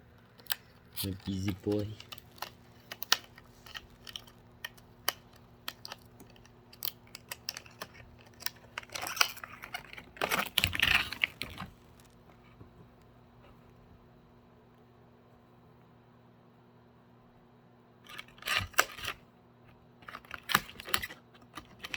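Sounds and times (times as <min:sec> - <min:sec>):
beak clicking on cardboard: 0:00.2 - 0:11.7
cardboard rustling and scraping: 0:07.1 - 0:12.7.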